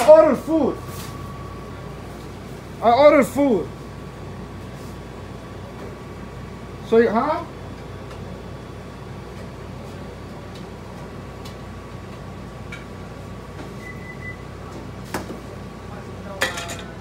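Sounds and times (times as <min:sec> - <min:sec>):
steady electrical hum: 0:00.0 - 0:17.0
short high beep: 0:13.8 - 0:14.4.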